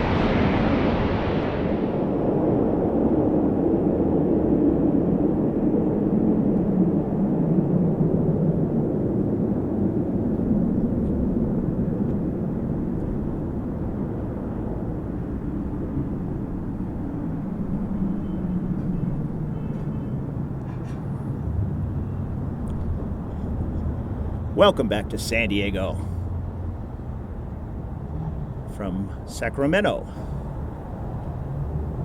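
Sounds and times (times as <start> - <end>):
jet engine rumble: 0.0 - 32.0.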